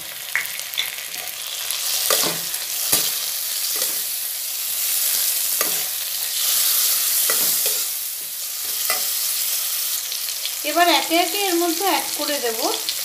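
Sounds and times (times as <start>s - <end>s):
vegetables sizzling in hot oil: 0.0s - 13.0s
metal spatula scraping a pan: 5.0s - 9.5s.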